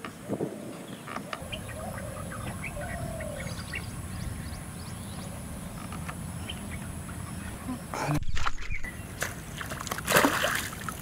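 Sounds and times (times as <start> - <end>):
small birds chirping: 0.0 - 9.7
steady low rumble: 1.4 - 8.9.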